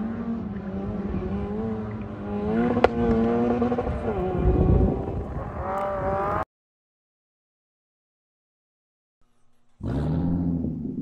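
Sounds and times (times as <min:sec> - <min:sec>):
car engine revving: 0:00.0 - 0:06.4, 0:09.8 - 0:11.0.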